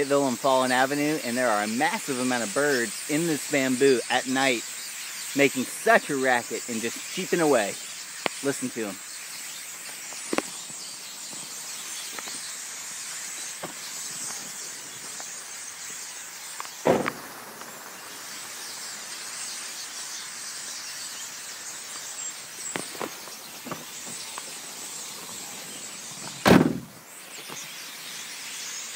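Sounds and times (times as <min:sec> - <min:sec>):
flock of birds chirping: 0:00.0 - 0:28.9
short sharp loud sounds: 0:16.8 - 0:17.3, 0:26.4 - 0:27.0.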